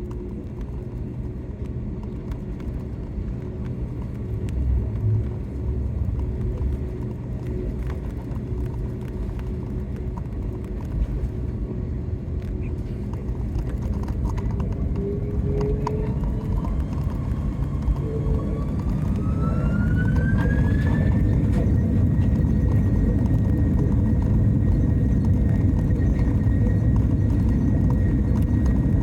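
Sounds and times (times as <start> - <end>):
jet airliner low rumble: 0.0 - 29.0.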